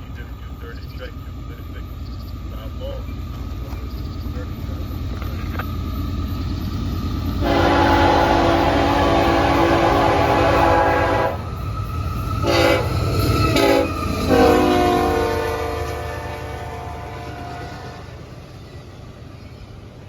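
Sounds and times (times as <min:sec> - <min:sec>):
low train rumble: 0:00.0 - 0:20.0
locomotive air horn blasts: 0:07.4 - 0:11.5, 0:12.4 - 0:18.2.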